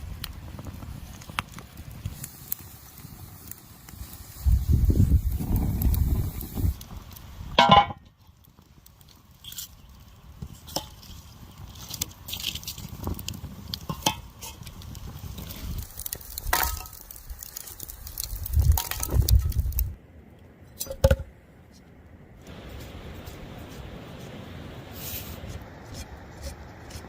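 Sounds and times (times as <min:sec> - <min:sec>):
dishes clinking and knocking: 0:07.6 - 0:08.0.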